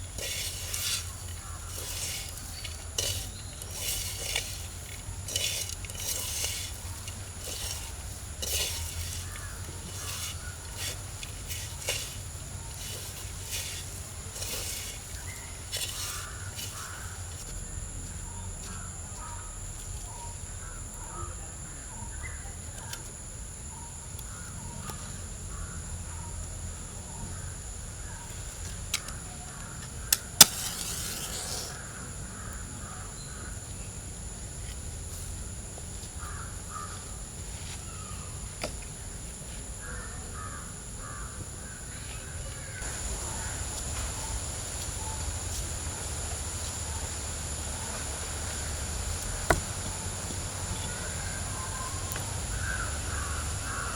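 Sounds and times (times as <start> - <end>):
birds calling: 0.0 - 23.0, 36.2 - 39.2, 39.8 - 53.9
crows cawing: 0.5 - 3.1, 5.4 - 13.1, 14.4 - 17.3, 36.2 - 37.1, 39.8 - 41.8, 50.8 - 53.9.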